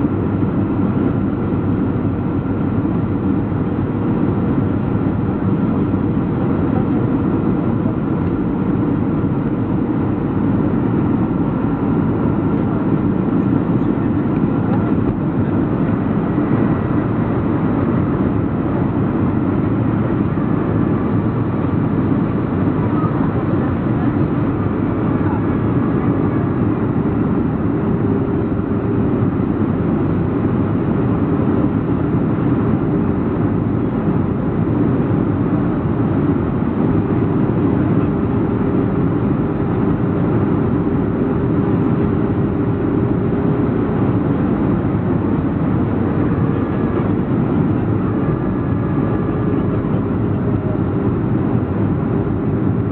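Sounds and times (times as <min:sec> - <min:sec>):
jet engines drone: 0:00.0 - 0:52.9.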